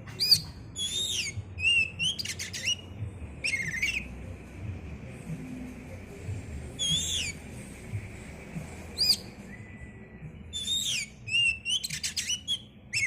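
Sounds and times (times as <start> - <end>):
bird singing whistled phrases: 0.1 - 4.1, 6.8 - 7.4, 8.9 - 13.0.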